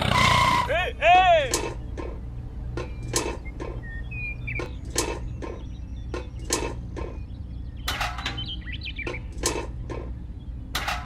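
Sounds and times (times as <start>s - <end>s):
steady low hum: 0.0s - 11.0s
bird chirping: 0.1s - 10.7s.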